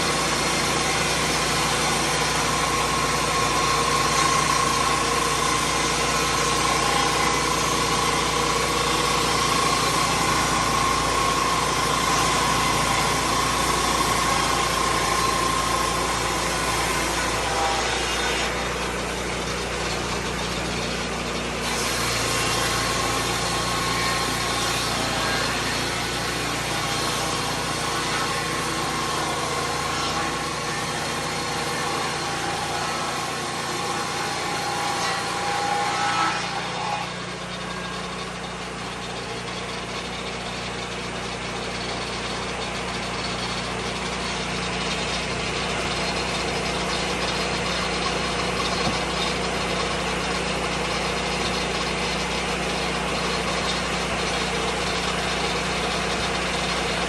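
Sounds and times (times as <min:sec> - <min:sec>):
sawmill engine running: 0:00.0 - 0:57.0.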